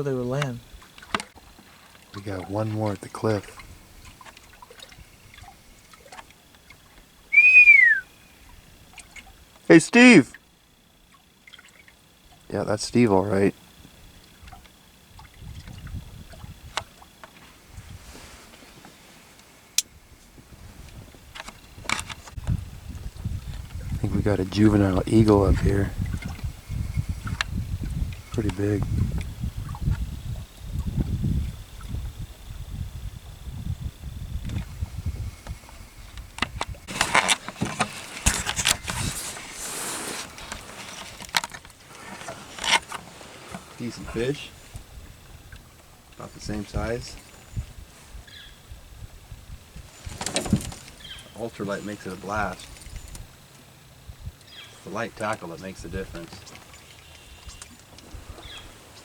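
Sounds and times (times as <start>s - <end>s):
water lapping around boat: 0.0s - 9.7s, 10.3s - 59.0s
wind rumble: 15.2s - 16.9s, 20.0s - 37.1s.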